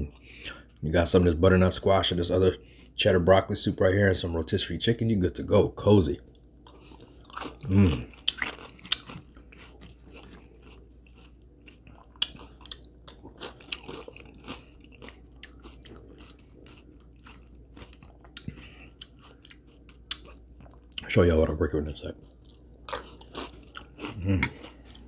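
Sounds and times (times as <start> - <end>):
person chewing food: 6.3 - 21.1, 22.2 - 25.0.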